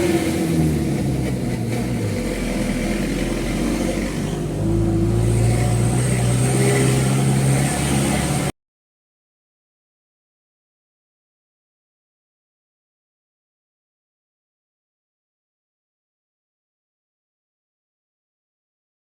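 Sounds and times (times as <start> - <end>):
diesel truck engine running: 0.0 - 8.5.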